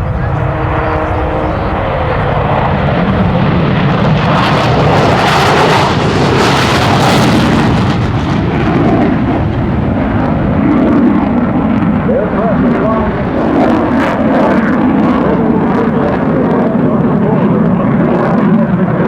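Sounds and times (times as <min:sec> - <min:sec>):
loud jet noise: 0:00.0 - 0:19.0.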